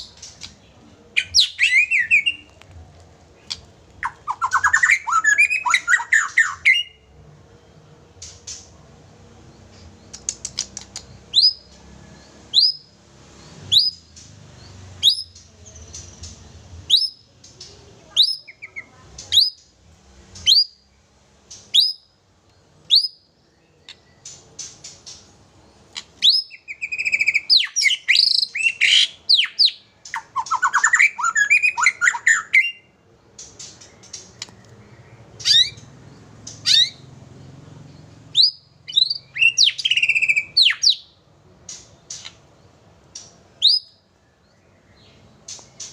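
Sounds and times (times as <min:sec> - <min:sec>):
bird whistles and chatter: 0:03.4 - 0:07.0, 0:15.0 - 0:19.6, 0:26.0 - 0:34.7, 0:35.4 - 0:37.1, 0:38.2 - 0:41.1, 0:43.2 - 0:44.0.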